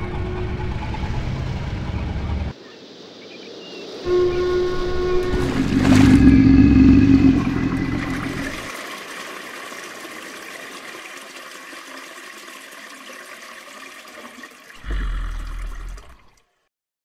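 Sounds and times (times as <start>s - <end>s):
loud deep rumble: 4.1s - 8.7s
water draining like toilet flush: 5.0s - 16.7s.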